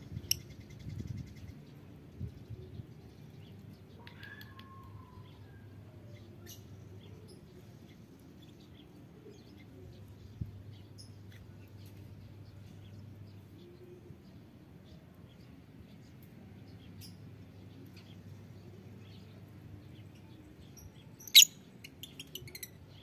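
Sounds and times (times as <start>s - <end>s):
lovebirds chirping: 6.2s - 23.0s.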